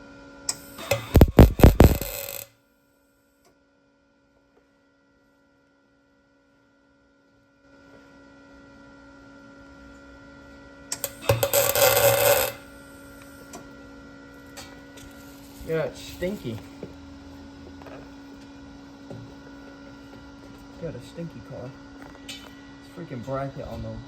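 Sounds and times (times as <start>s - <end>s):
faint steady hum: 0.0s - 2.5s
welding arc crackling and sizzling: 0.5s - 2.5s, 10.9s - 13.6s, 14.5s - 16.6s.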